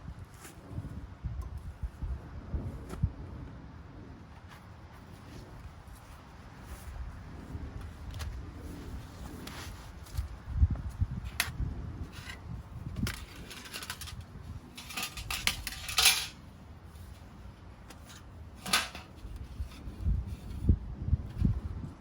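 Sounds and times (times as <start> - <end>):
hard objects clicking and clattering: 13.0 - 16.4, 18.6 - 19.2.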